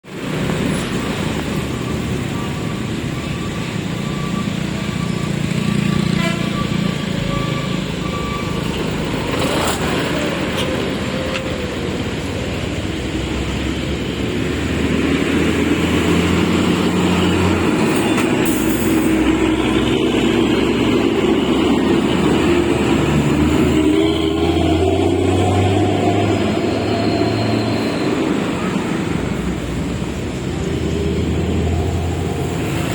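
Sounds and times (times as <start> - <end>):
road traffic engine noise: 0.0 - 32.9.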